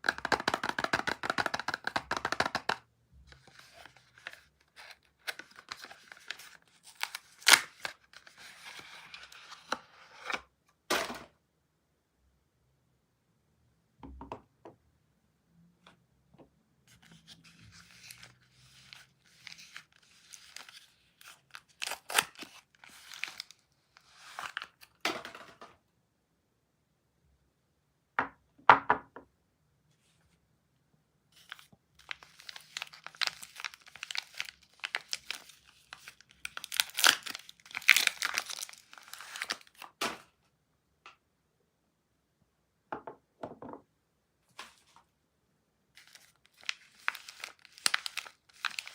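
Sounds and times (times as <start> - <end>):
wrapper crinkling: 3.4 - 9.3, 17.2 - 23.6, 31.4 - 40.0, 46.0 - 48.9
packaging being torn open: 3.4 - 10.4, 17.2 - 24.8, 31.5 - 39.9, 46.0 - 48.9.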